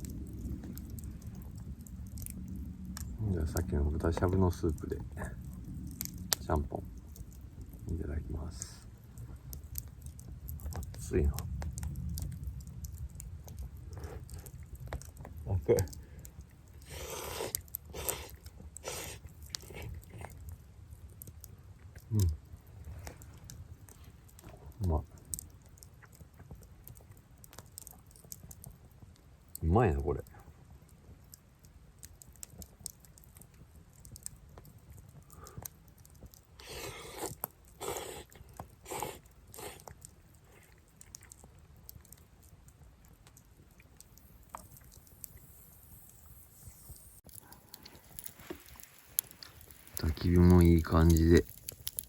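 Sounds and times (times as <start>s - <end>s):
faint ticks: 0.0s - 8.0s, 8.6s - 52.0s
quiet chewing: 0.0s - 29.6s, 30.2s - 52.0s
person slurping noodles: 36.6s - 39.8s.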